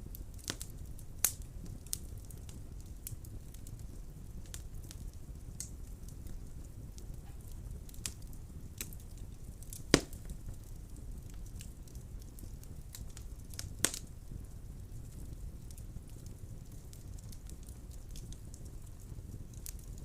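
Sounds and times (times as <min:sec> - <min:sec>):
wood fire crackling: 0:00.0 - 0:20.0
loud pop of fire: 0:07.0 - 0:10.5, 0:13.0 - 0:14.2.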